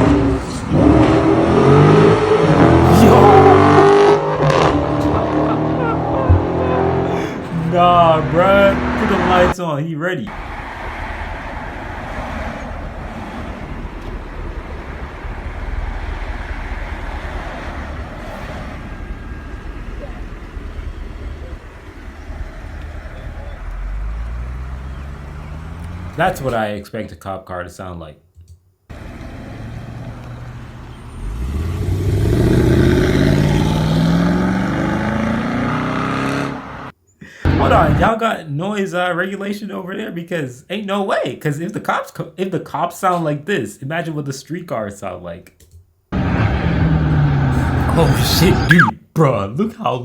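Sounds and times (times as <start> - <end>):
car engine rumbling: 0.0 - 9.6, 10.3 - 26.5, 37.5 - 38.1, 46.1 - 48.9
road noise: 0.0 - 9.6, 10.3 - 26.6, 28.9 - 38.1, 46.1 - 48.9.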